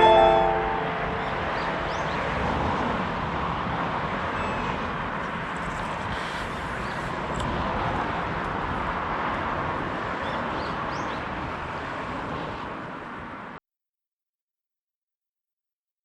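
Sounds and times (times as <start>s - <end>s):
short high chirps: 0.0s - 2.7s
steady rushing outdoor noise: 1.1s - 13.6s.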